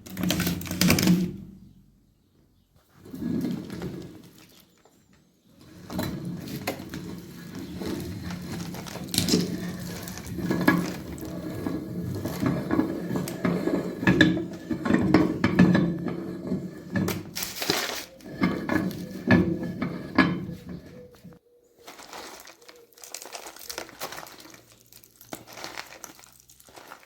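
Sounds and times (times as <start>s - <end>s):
walnut shells cracking and crunching: 6.6s - 11.3s, 21.8s - 27.0s.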